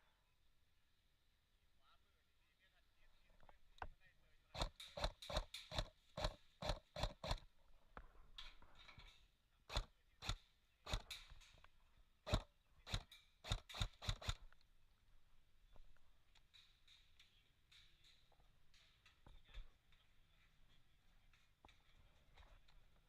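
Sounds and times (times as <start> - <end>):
airsoft guns firing single shots: 9.7 - 11.4, 12.3 - 14.4.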